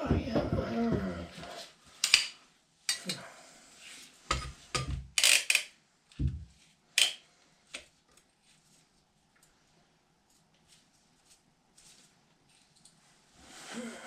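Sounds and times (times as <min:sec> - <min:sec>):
dull thumps: 0:00.0 - 0:01.3.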